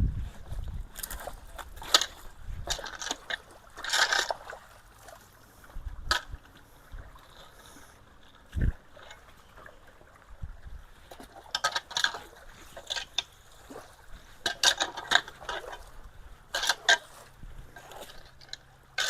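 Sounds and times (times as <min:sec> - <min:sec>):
water: 0:00.0 - 0:19.0
debris scraping and clattering: 0:16.5 - 0:19.0.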